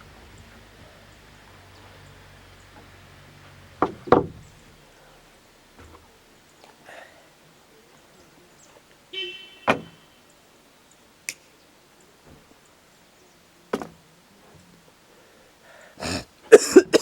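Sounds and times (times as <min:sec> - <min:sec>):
sharp wooden knocks: 0:03.8 - 0:04.6, 0:09.7 - 0:09.9, 0:13.7 - 0:14.0.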